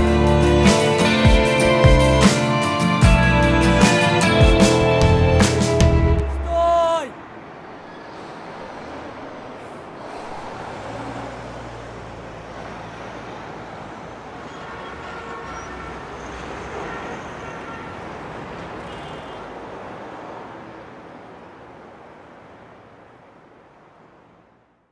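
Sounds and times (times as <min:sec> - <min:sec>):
passing vehicles: 0:00.0 - 0:24.9
low engine hum: 0:08.2 - 0:14.4.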